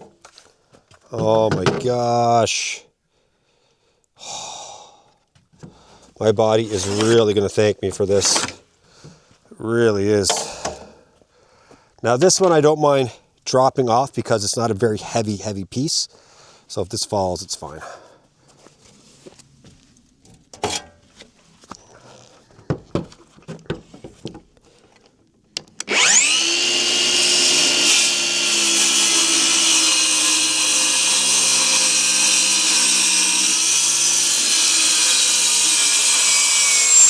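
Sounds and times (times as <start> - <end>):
circular saw cutting wood: 6.5 - 7.4, 25.8 - 37.0.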